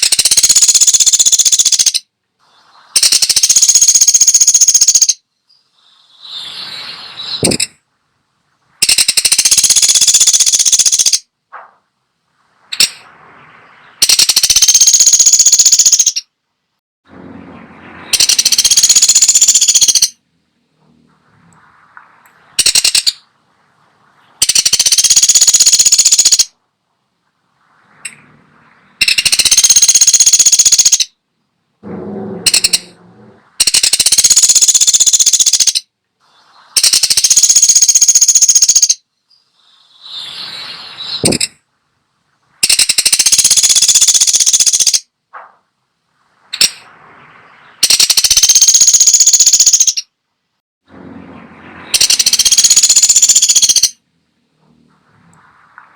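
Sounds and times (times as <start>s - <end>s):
woodpecker rattling bursts: 0.0s - 2.1s, 2.7s - 6.4s, 7.2s - 7.8s, 8.7s - 16.3s, 17.2s - 20.2s, 21.2s - 26.6s, 27.9s - 31.2s, 31.8s - 35.9s, 36.7s - 40.2s, 41.0s - 41.6s, 42.6s - 45.6s, 46.2s - 50.2s, 51.4s - 54.0s.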